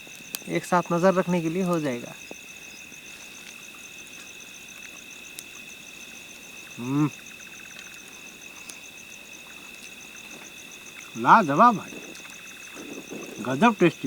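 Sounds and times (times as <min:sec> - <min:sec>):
insects shrill tones: 0:00.0 - 0:14.0.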